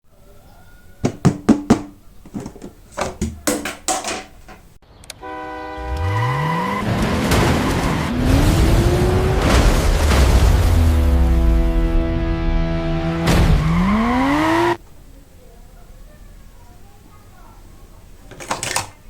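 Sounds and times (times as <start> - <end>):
sharp clicks and knocks: 1.0 - 4.8, 18.3 - 19.0
car engine revving: 6.1 - 14.8.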